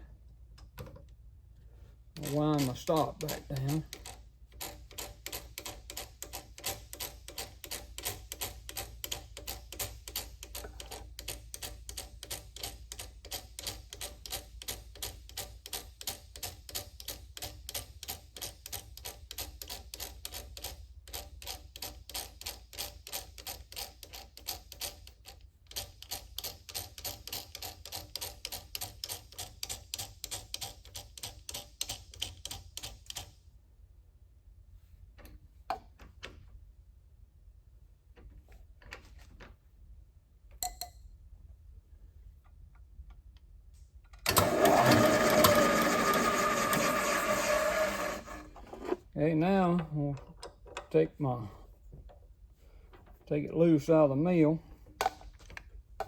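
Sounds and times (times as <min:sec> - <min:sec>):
milling machine clicking: 0:44.2 - 0:49.0.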